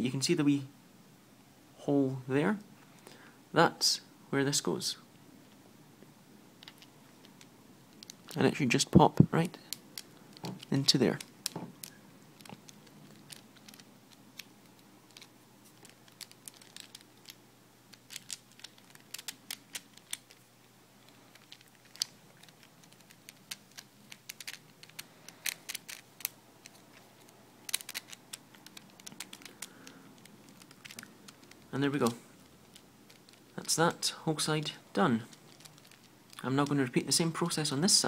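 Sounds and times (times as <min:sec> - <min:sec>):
plastic puzzle pieces clicking: 0:06.6 - 0:08.4, 0:09.7 - 0:20.5, 0:21.1 - 0:33.8, 0:35.3 - 0:36.8.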